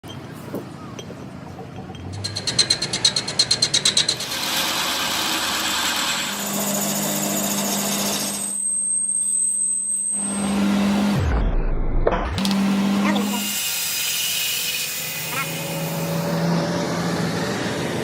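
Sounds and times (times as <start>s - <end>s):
power tool rattling: 2.1s - 8.4s
power tool grinding with low hum: 2.2s - 8.9s, 12.4s - 18.0s.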